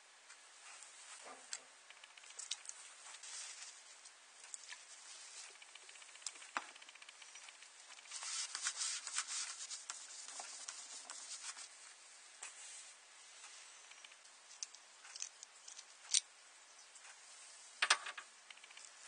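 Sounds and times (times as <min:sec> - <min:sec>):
small objects clicking: 0:14.0 - 0:16.3.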